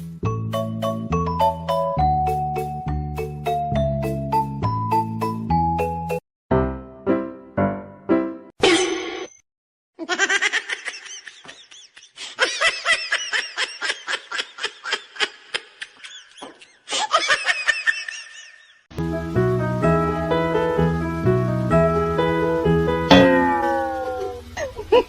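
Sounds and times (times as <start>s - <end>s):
piano music: 0.2s - 8.5s, 19.0s - 24.6s
high-pitched laughter: 10.0s - 18.8s, 23.8s - 25.0s.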